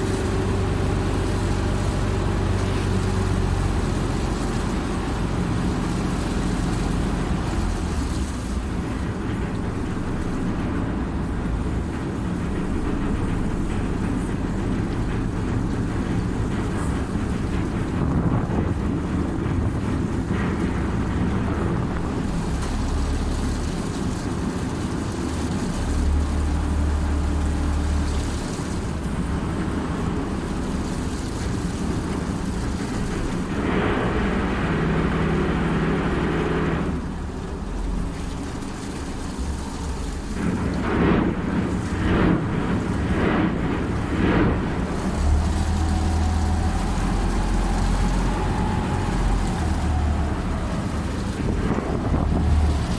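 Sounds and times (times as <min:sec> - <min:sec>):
ferry engine rumbling: 0:00.0 - 0:52.9.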